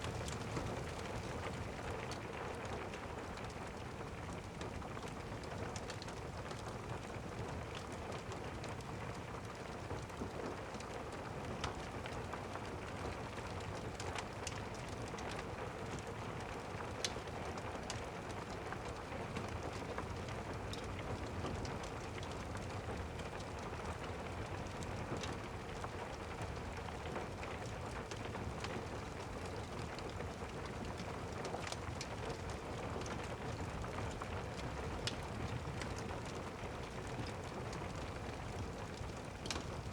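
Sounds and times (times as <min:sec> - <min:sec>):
fireplace crackling: 0:00.0 - 0:01.7
steady rain hiss: 0:00.0 - 0:01.8.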